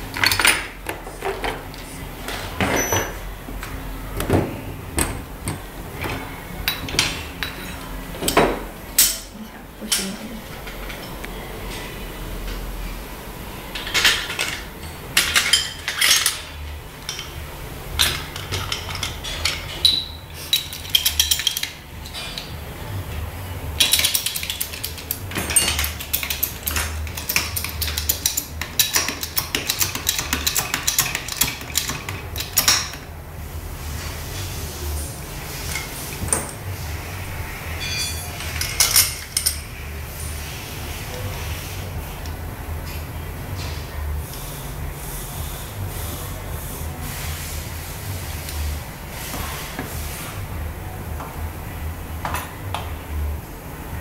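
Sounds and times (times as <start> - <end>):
metal tools clinking and knocking: 0.1 - 1.6, 5.0 - 9.3, 13.8 - 16.5, 18.0 - 22.5, 23.8 - 33.0, 37.8 - 39.7.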